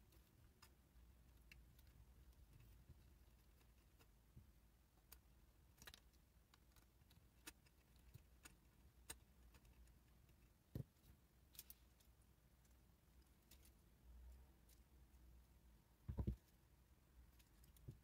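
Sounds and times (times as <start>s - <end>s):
soft knock: 16.1s - 16.4s.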